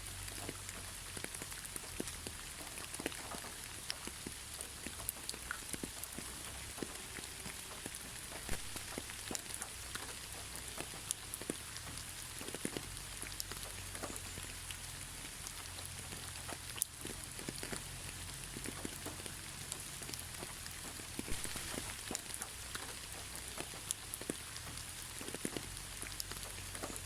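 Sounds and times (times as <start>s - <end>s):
gentle rain hiss: 0.0s - 27.0s
raindrops tapping on a surface: 0.0s - 27.0s.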